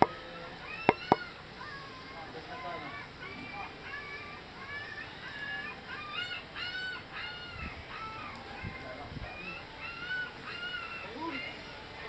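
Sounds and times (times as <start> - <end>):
bird calling: 0.0 - 11.8.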